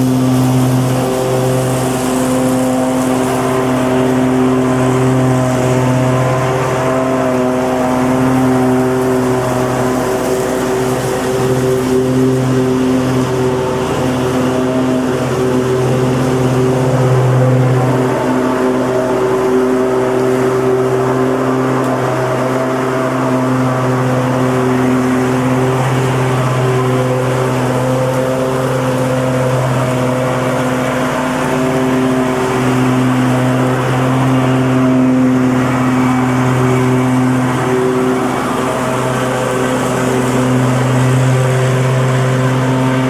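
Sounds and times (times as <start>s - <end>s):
lawnmower engine running: 0.0s - 43.0s.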